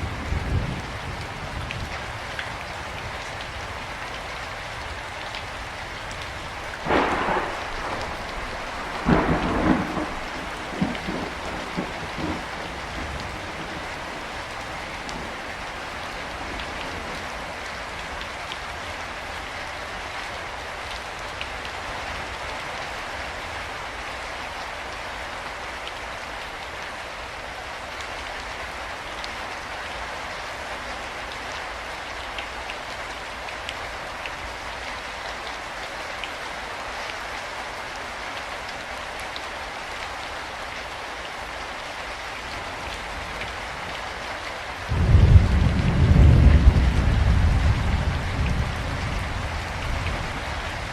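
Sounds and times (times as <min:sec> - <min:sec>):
raindrops ticking: 0:00.0 - 0:16.0
low rumble of thunder: 0:00.0 - 0:17.4, 0:44.8 - 0:50.9
steady rain falling: 0:00.0 - 0:50.9.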